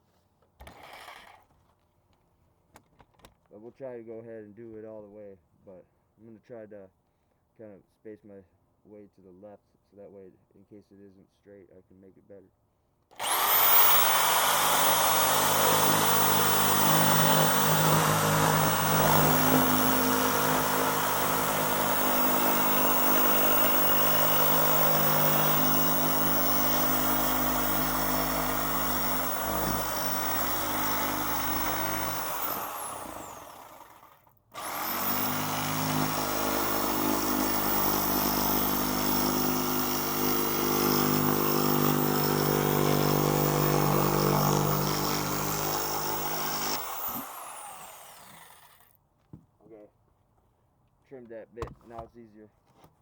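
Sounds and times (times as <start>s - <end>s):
electric power saw cutting: 13.2s - 48.8s.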